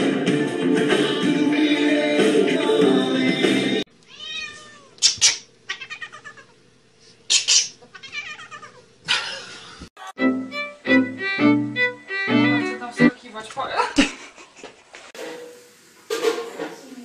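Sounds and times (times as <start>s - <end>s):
cat meowing and yowling: 4.1s - 5.0s, 5.7s - 6.5s, 7.9s - 8.8s.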